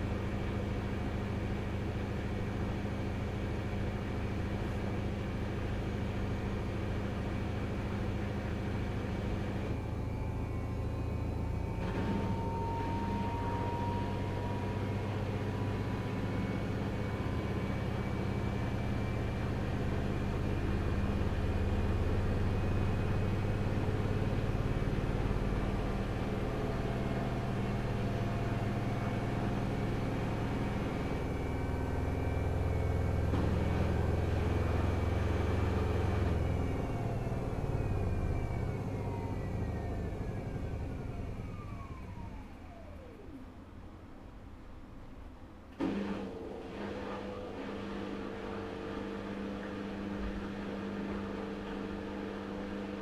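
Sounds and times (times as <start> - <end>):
washing machine spinning: 0.0 - 43.4, 46.3 - 53.0.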